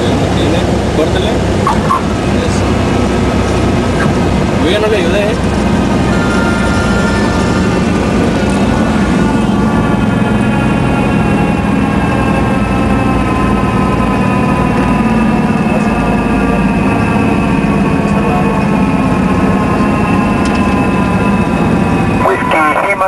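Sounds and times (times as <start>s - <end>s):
airplane engine drone in cabin: 0.0s - 23.0s.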